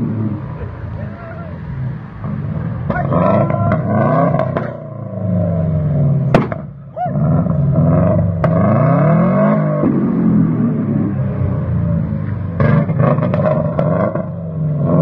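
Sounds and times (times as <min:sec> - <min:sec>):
car engine revving: 0:00.0 - 0:15.0
exhaust backfire bangs: 0:06.2 - 0:06.8.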